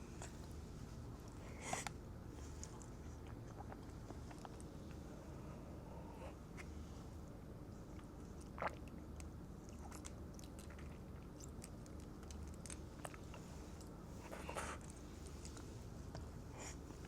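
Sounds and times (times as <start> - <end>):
chewing food: 1.3 - 5.0, 7.9 - 16.4.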